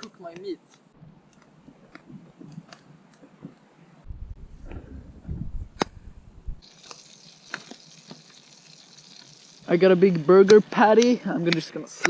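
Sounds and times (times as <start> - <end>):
low rumble: 4.1 - 6.6
butter sizzling in frying pan: 6.6 - 10.5.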